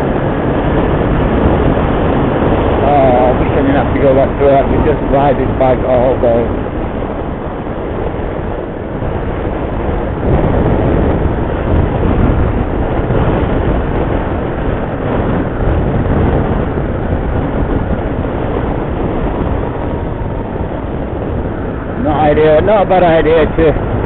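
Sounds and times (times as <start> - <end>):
road noise: 0.0 - 24.0
wind rush over microphone: 0.0 - 24.0
motorcycle engine: 6.4 - 22.7.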